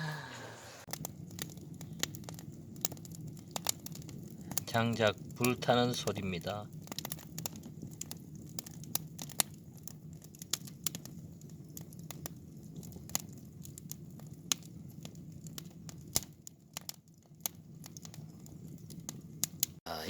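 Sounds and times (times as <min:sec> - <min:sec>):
firewood crackling and popping: 0:00.8 - 0:19.8.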